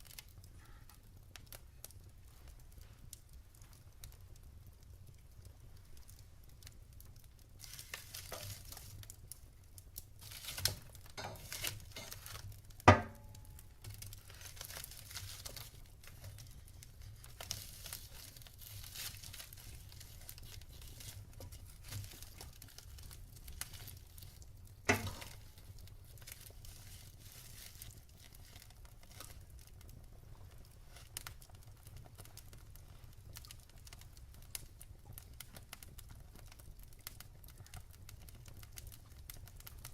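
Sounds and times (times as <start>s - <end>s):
log fire crackling: 0.0s - 39.9s
loud fire pops: 10.0s - 39.9s.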